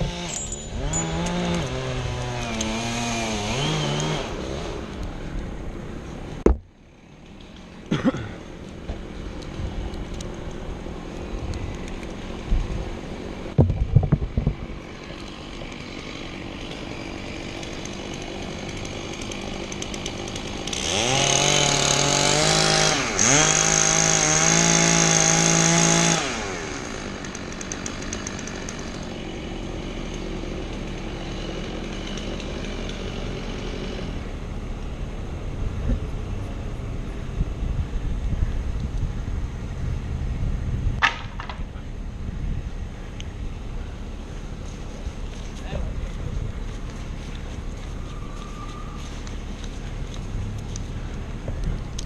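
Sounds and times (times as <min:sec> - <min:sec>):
two-stroke chainsaw revving: 0:00.0 - 0:05.1, 0:12.2 - 0:35.3.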